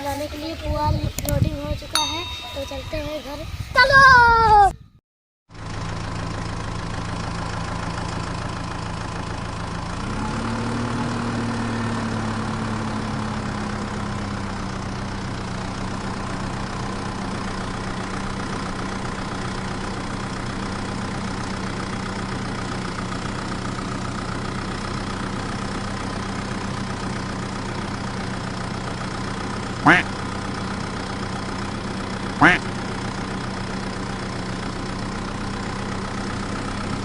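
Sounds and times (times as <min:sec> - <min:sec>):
tractor engine drone: 0:05.5 - 0:37.0.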